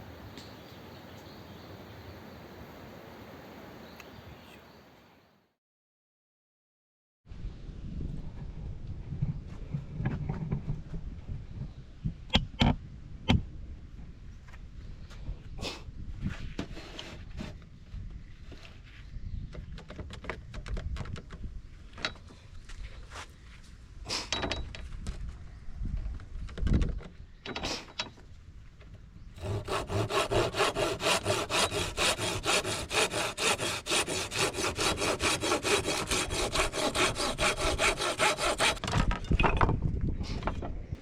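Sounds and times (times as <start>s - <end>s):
hand saw cutting wood: 29.4s - 38.9s
knocks and clatters from handling: 38.8s - 40.8s.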